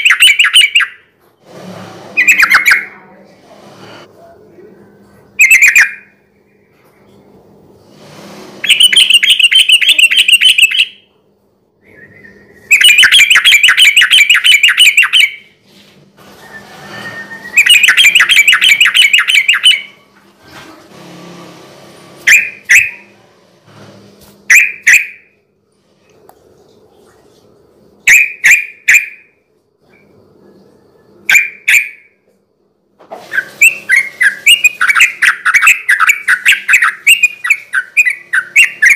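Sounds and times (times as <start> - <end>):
bird chattering song: 0.0 - 1.0, 2.2 - 3.0, 5.4 - 6.1, 8.6 - 11.0, 12.2 - 15.5, 17.4 - 19.9, 33.4 - 38.9
faint low hum: 2.0 - 7.8, 29.3 - 33.1.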